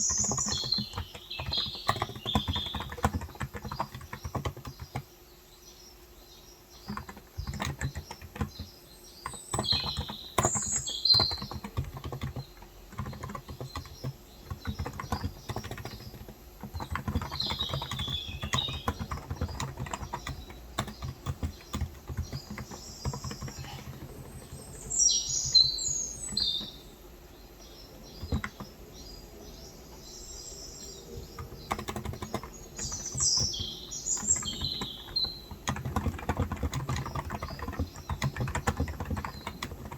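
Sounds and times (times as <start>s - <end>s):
keyboard typing: 0.0s - 5.1s, 6.8s - 27.0s, 28.0s - 28.8s, 30.8s - 39.9s
birds chirping: 0.0s - 39.9s.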